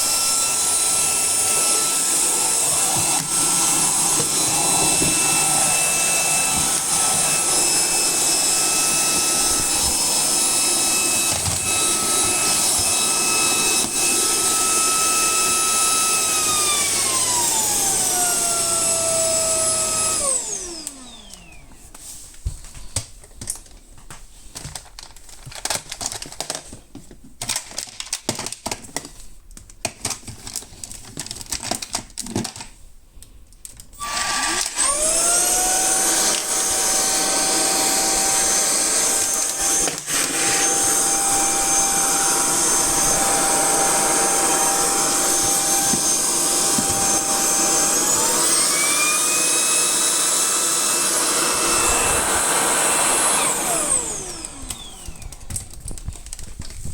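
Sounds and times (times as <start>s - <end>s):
stick vacuum motor whining: 0.0s - 21.7s, 34.0s - 56.8s.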